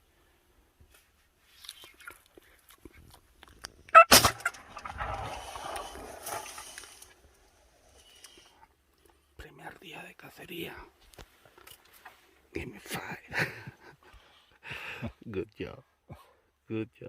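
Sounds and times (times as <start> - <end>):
loud shotgun blast: 4.0 - 6.0.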